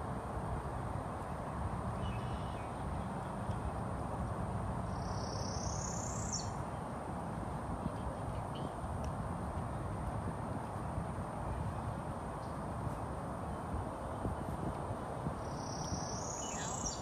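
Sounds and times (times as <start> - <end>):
bird chirps: 15.4 - 17.0.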